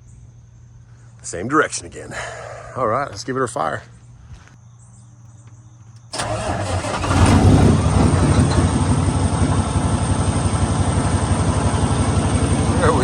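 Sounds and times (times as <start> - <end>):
starter cranking diesel engine: 6.1 - 13.0
truck diesel engine idling: 6.1 - 13.0.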